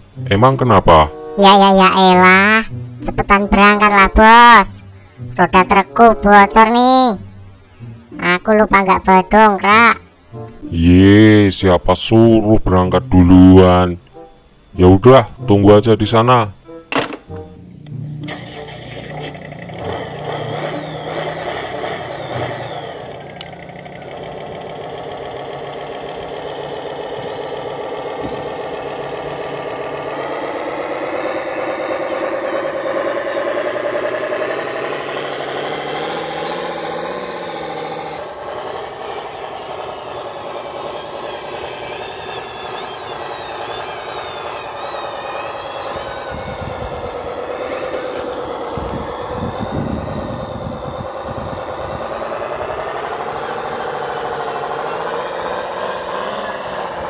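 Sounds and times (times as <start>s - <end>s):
truck engine: 0.0s - 11.5s, 16.8s - 57.0s.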